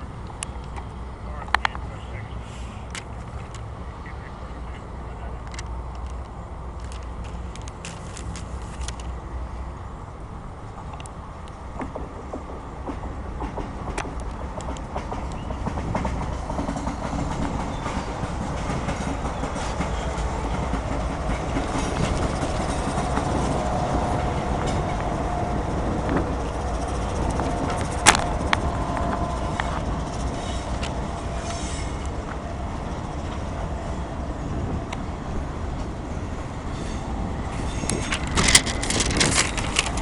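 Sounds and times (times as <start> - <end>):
freight train rumbling past: 0.0 - 40.0
wheels clicking over rail joints: 5.4 - 9.2, 10.7 - 33.8, 37.5 - 40.0.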